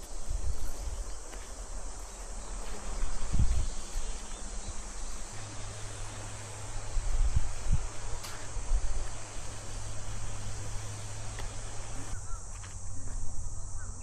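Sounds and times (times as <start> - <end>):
insects droning: 0.0 - 14.0
low hum: 1.7 - 12.2.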